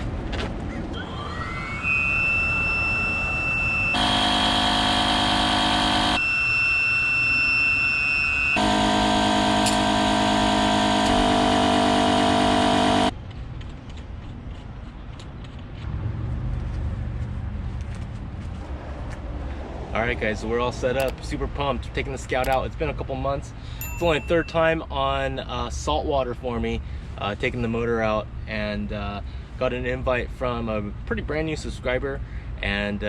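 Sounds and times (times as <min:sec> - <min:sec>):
high whistle-like synth tone: 0:01.0 - 0:13.1
loud buzzing synth chord: 0:01.8 - 0:13.1.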